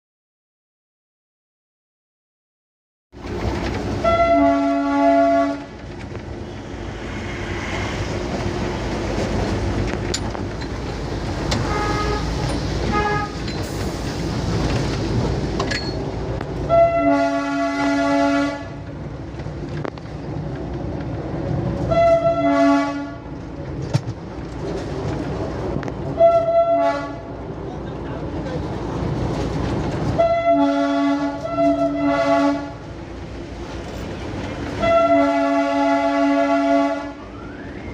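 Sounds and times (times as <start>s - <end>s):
diesel train rumbling: 3.1s - 37.9s
train horn blasts: 4.0s - 5.7s, 11.6s - 13.4s, 16.6s - 18.8s, 21.9s - 23.3s, 26.1s - 27.3s, 30.2s - 32.8s, 34.8s - 37.7s.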